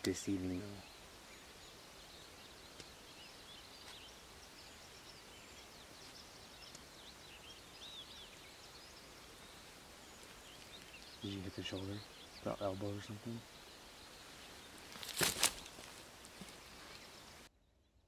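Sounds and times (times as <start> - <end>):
soft background hiss: 0.0 - 17.5
faint bird chirps: 0.0 - 18.0.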